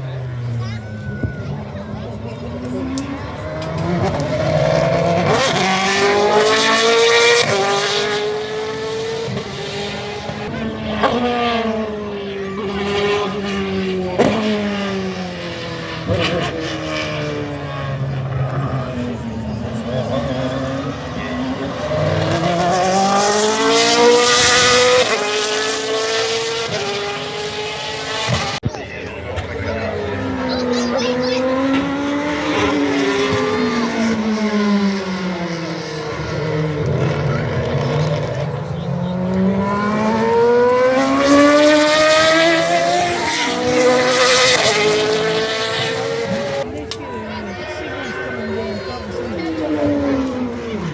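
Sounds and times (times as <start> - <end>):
racing engine accelerating: 0.0 - 50.9.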